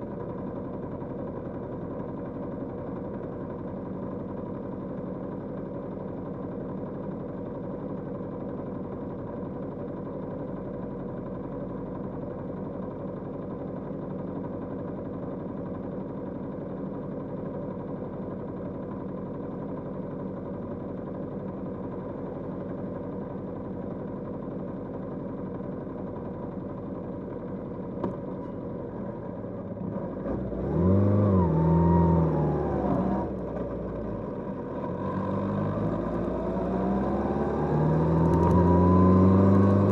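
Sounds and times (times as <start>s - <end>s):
motorcycle engine running and revving: 25.7s - 39.9s.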